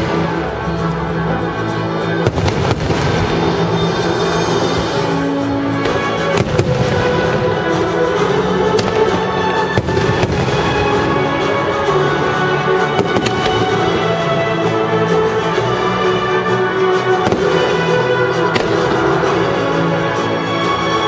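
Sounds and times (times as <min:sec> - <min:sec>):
music: 0:00.0 - 0:21.0
fireworks bursting: 0:02.1 - 0:14.3, 0:17.0 - 0:20.6.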